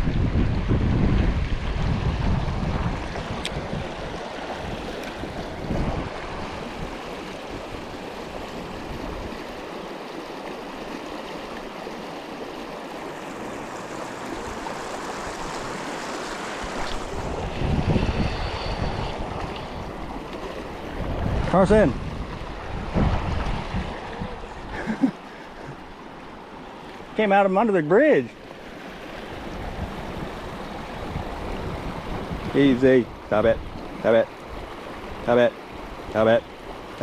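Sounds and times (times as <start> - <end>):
wind buffeting microphone: 0.0 - 9.5, 13.2 - 25.0, 29.0 - 36.1
river water running: 0.0 - 37.0.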